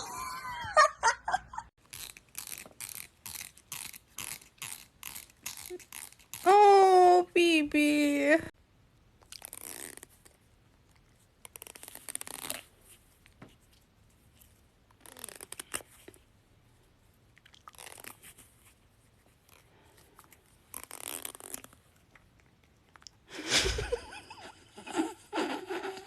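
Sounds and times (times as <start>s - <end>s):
fingertip scraping comb teeth: 1.8s - 6.5s.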